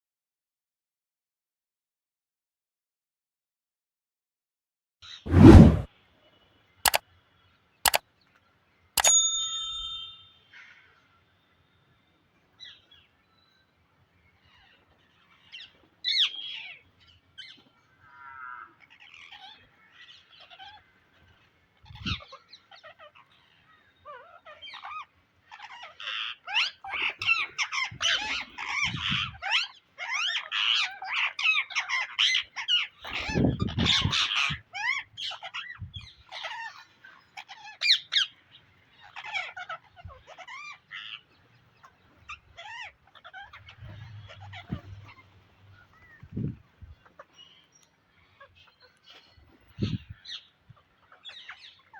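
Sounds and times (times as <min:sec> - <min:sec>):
short ringing chime: 0:09.0 - 0:10.3
parakeets squawking: 0:37.4 - 0:46.2.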